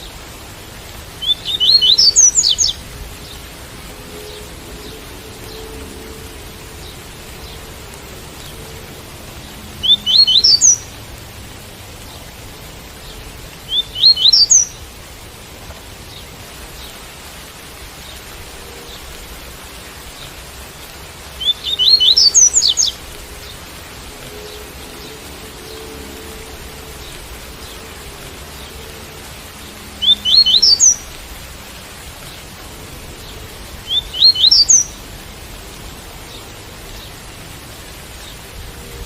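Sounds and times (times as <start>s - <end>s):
rain hiss: 0.0s - 39.0s
bird singing rising notes: 1.2s - 3.5s, 9.8s - 10.9s, 13.7s - 14.8s, 21.4s - 29.0s, 29.6s - 31.2s, 33.8s - 35.0s.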